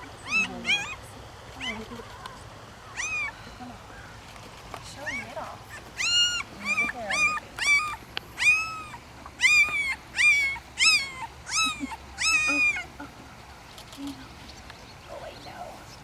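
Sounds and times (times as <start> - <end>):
puppy squealing: 0.2 - 3.5, 5.0 - 13.0.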